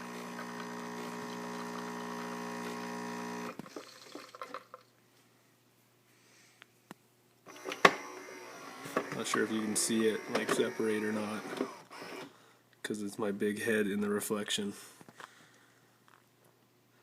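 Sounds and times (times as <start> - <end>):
espresso machine pump hum: 0.0 - 4.6
coffee running into cup: 0.0 - 4.8.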